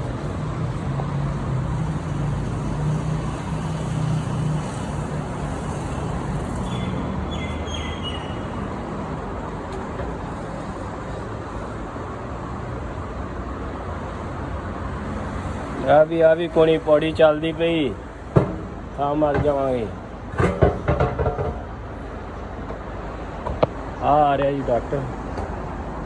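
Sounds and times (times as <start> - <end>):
road traffic engine hum: 0.0 - 26.0
short high squeaks: 3.4 - 8.7.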